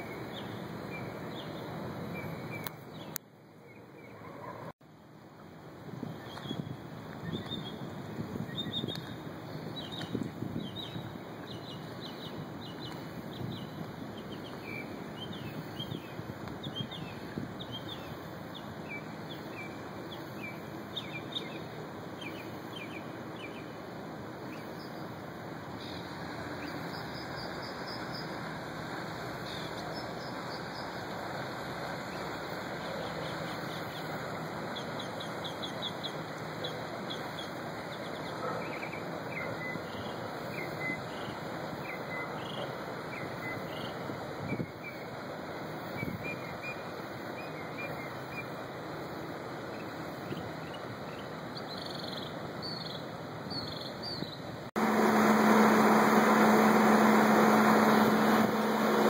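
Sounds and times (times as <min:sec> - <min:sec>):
water noise: 0:00.0 - 0:51.7, 0:54.5 - 0:59.0
wind: 0:00.0 - 0:59.0.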